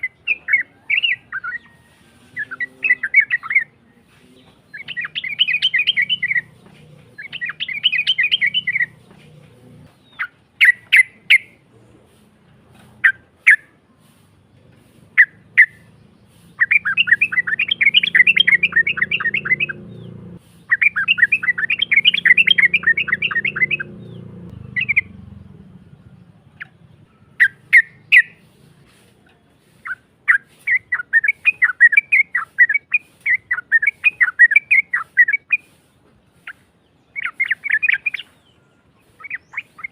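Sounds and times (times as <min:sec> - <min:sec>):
bird chattering trills: 0:00.0 - 0:39.9
short bird calls: 0:00.0 - 0:39.9.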